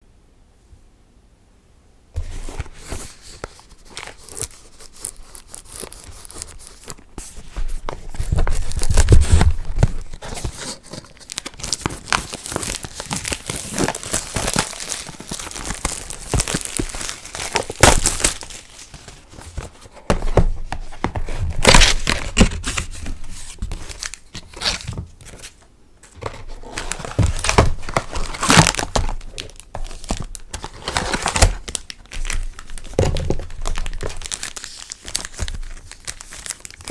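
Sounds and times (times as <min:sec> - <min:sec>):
plastic wrapping crinkling: 0:02.6 - 0:20.5, 0:21.1 - 0:36.9
plastic tearing: 0:02.8 - 0:19.8, 0:26.1 - 0:36.9.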